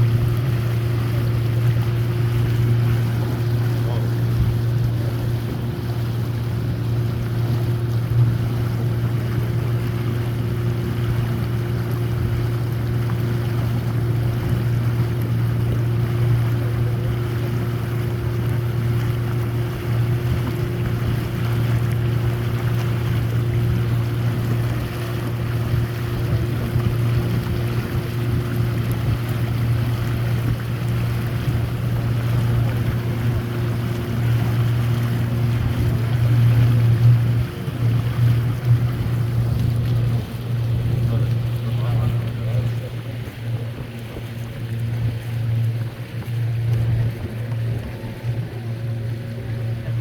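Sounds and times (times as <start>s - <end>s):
boat motor droning: 0.0s - 50.0s
water noise: 0.0s - 50.0s.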